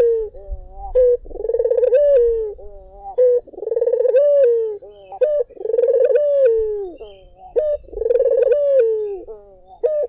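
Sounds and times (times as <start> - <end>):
dove cooing: 0.0 - 10.0.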